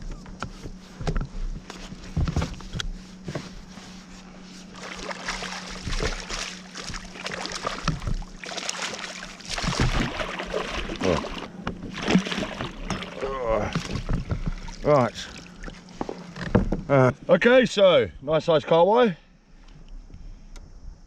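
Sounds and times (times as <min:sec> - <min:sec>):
knocks and rattles on kayak: 0:00.0 - 0:03.6, 0:04.7 - 0:17.0
water sloshing around hull: 0:00.0 - 0:17.3.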